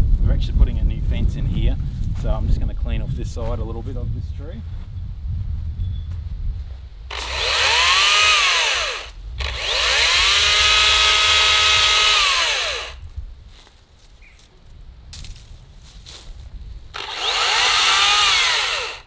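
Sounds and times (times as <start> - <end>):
cordless chainsaw whining: 7.1 - 13.0, 16.9 - 19.0.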